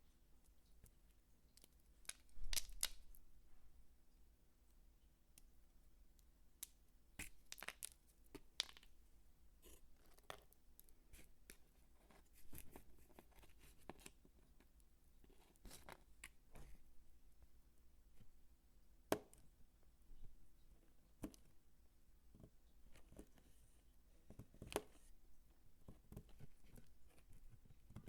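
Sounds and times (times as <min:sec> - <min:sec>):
soap crunching and crackling: 0:01.5 - 0:03.3, 0:06.6 - 0:09.0.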